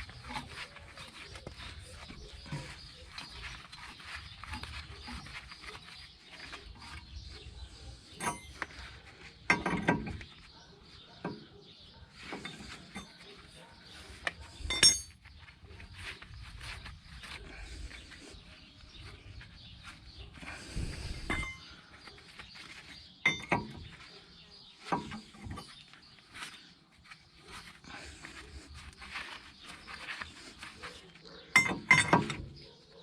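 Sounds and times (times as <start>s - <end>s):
scraping rattle: 0.0s - 10.5s, 19.0s - 26.7s
sharp metallic clinks ringing: 8.2s - 8.5s, 14.7s - 15.2s
metal tools clinking: 8.2s - 8.7s, 14.5s - 15.3s, 21.2s - 21.7s, 23.2s - 24.0s, 31.5s - 32.6s.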